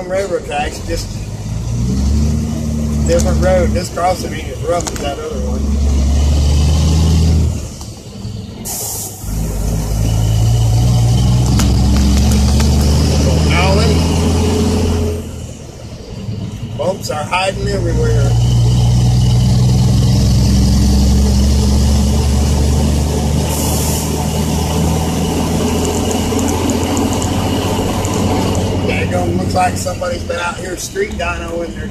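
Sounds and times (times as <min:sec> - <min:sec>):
diesel engine running: 0:00.0 - 0:31.9
brief hiss: 0:08.6 - 0:09.3
air hiss: 0:08.6 - 0:09.4, 0:23.4 - 0:24.3.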